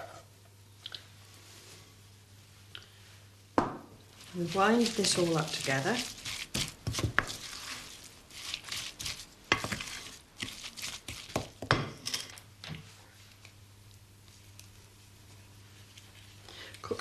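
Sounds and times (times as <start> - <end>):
hands rubbing wet mixture: 4.1 - 11.6.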